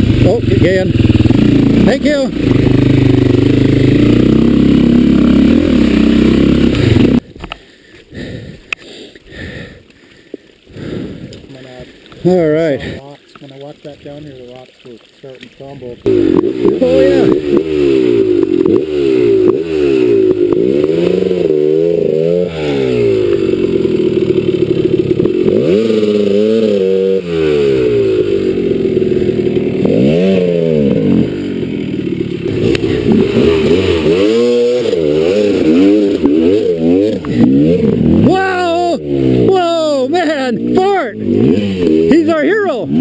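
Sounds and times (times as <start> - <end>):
dirt bike engine revving: 0.0 - 7.3, 16.0 - 43.0.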